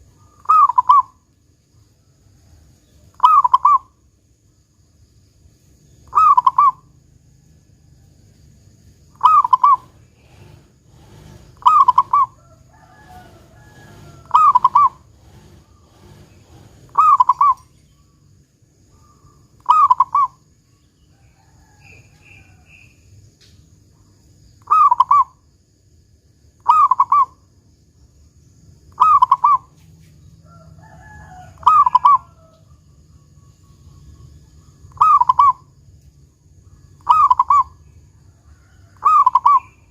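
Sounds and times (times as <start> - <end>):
birds chirping: 0.0 - 1.2, 5.8 - 7.0, 9.1 - 23.0, 28.9 - 29.8, 33.1 - 35.8, 39.0 - 39.9
dove cooing song: 0.0 - 1.2, 3.1 - 3.9, 6.0 - 7.0, 9.1 - 17.8, 19.0 - 20.4, 24.6 - 25.4, 26.6 - 27.4, 28.9 - 29.7, 31.0 - 35.8, 36.8 - 37.8, 38.9 - 39.9.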